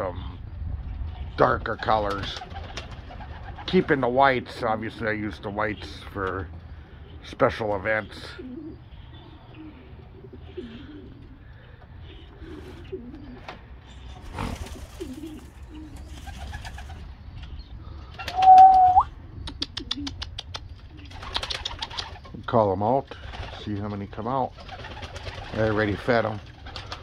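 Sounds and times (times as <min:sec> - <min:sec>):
pigeons cooing: 0:02.2 - 0:22.4, 0:24.4 - 0:27.0
brief rising squeak: 0:18.3 - 0:19.0
run of sharp clicks: 0:19.5 - 0:20.7.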